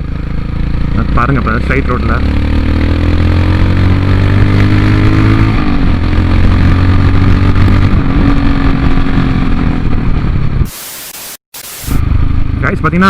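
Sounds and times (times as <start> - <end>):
motorcycle engine running: 0.0 - 13.0
short hiss: 10.7 - 12.0.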